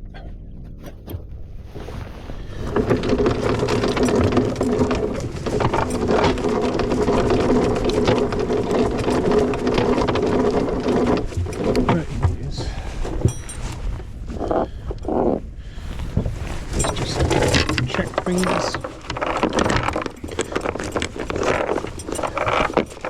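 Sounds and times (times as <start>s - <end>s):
windlass motor running: 0.8s - 23.0s
chain rattling: 2.5s - 15.2s, 15.8s - 23.0s.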